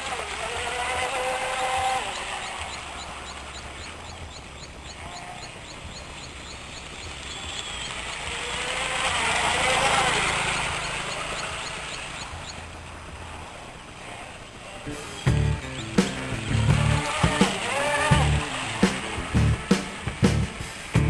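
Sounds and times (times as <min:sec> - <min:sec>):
rc boat motor whine: 0:00.0 - 0:21.0
water spray: 0:06.7 - 0:12.4, 0:14.9 - 0:21.0.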